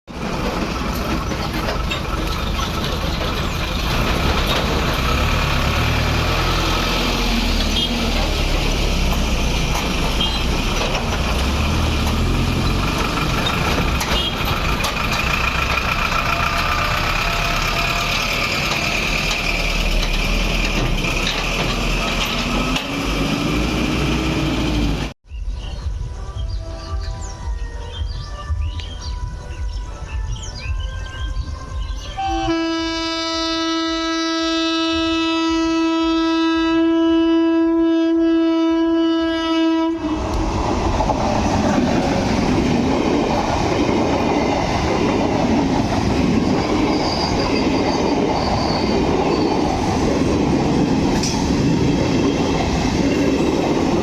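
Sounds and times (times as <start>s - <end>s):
traffic rumble: 0.1s - 25.2s, 40.0s - 54.0s
music: 25.3s - 37.4s.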